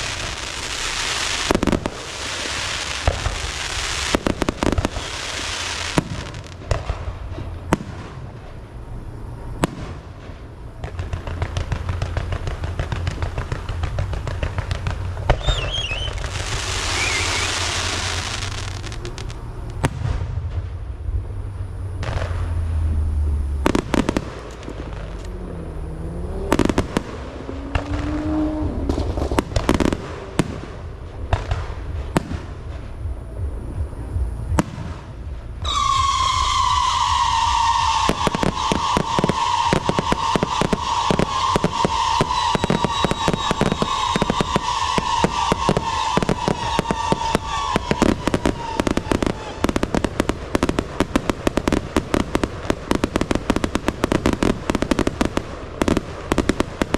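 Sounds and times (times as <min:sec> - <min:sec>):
fireworks bangs: 0:00.0 - 0:56.9
firework whistle dropping in pitch: 0:15.3 - 0:19.4, 0:23.6 - 0:30.0, 0:35.6 - 0:50.1.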